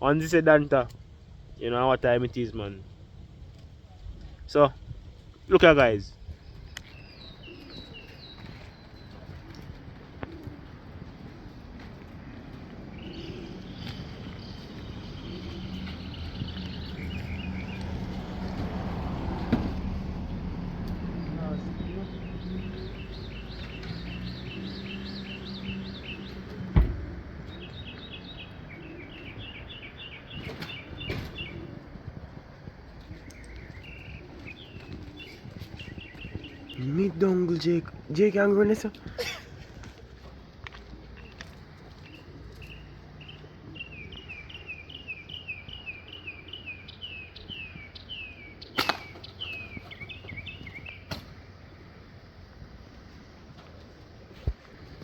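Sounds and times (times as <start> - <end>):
small birds chirping: 1.8 - 55.0
sharp loud snap: 48.8 - 49.2, 51.1 - 51.4.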